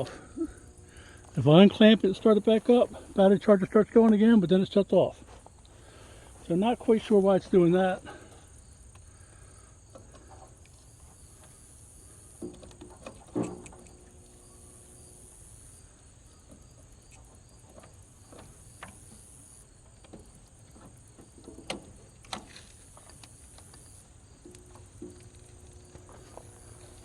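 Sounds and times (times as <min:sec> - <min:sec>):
crickets chirring: 0:00.0 - 0:27.0.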